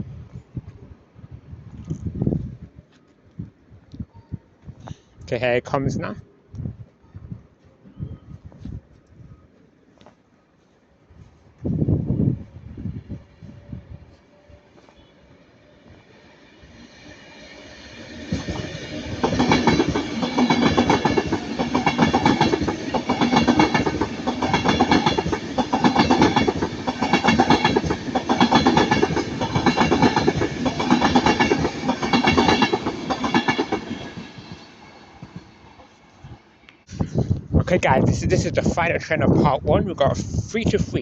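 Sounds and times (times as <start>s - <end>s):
train passing: 10.6s - 36.9s, 37.5s - 41.0s.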